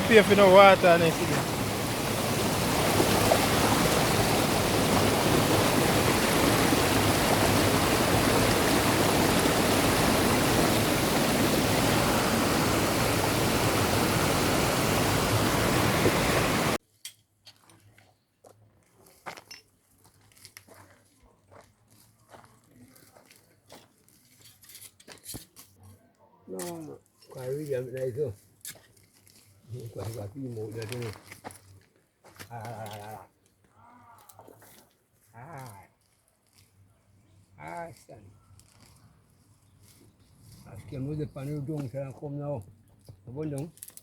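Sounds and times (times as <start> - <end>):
flowing water rushing: 0.0 - 16.8.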